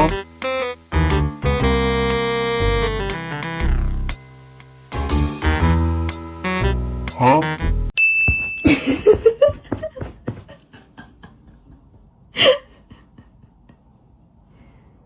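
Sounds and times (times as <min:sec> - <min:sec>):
person laughing: 0:08.6 - 0:13.8.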